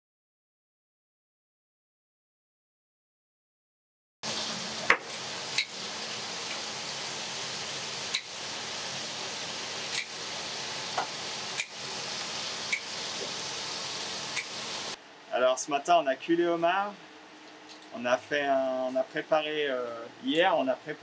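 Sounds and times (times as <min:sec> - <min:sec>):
food frying sizzle: 0:04.2 - 0:15.0.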